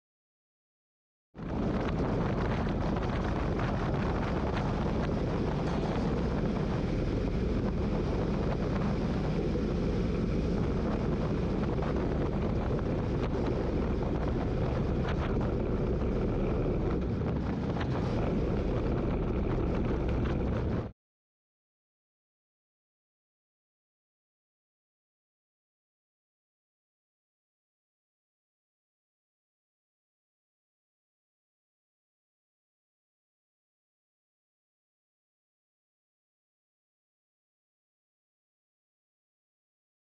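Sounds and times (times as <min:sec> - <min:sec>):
wind on microphone: 0:01.4 - 0:21.0
motorcycle engine: 0:04.2 - 0:20.9.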